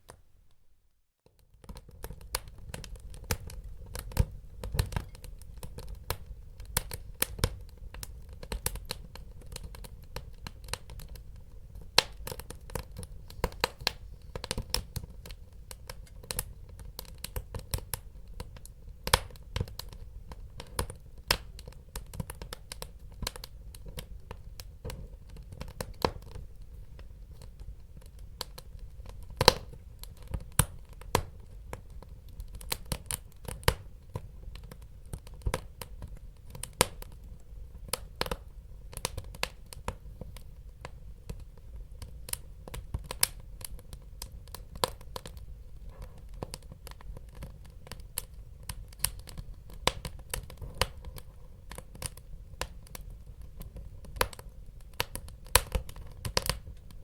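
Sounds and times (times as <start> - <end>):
wood fire crackling: 1.3 - 57.0.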